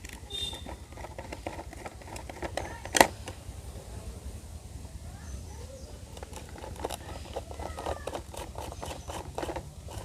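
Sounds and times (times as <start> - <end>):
plastic parts being handled: 0.0 - 3.4, 6.1 - 10.0.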